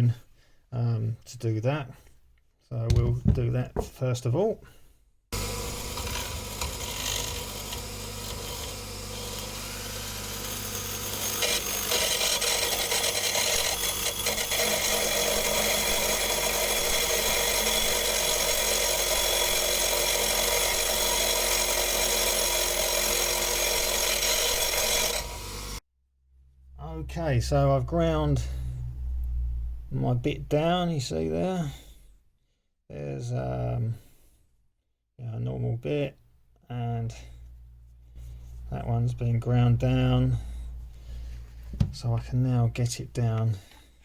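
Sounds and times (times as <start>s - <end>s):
electric grindstone humming: 5.4s - 25.8s
metal bit grinding on wheel: 5.4s - 25.8s.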